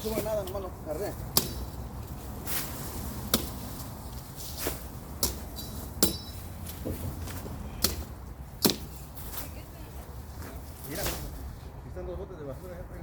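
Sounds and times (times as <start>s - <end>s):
machete chopping branches: 0.0s - 9.6s, 10.9s - 11.4s.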